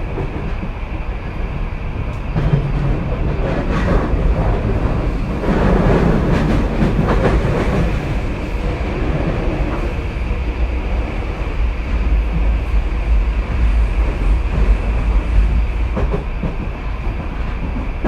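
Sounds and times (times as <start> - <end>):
train wheels rumbling on rail: 0.0 - 18.0
rail-joint clicks: 2.0 - 8.1.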